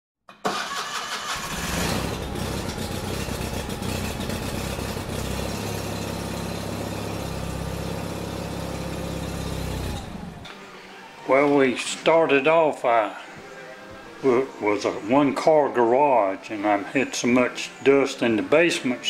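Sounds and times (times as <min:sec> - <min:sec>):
car engine starting and idling: 0:00.4 - 0:10.5.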